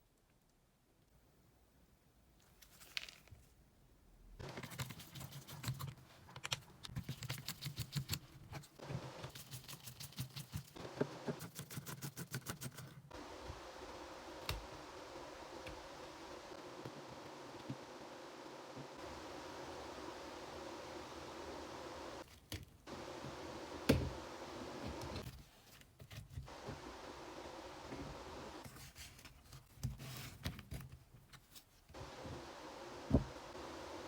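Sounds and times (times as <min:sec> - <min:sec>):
motor humming: 0:22.9 - 0:25.2.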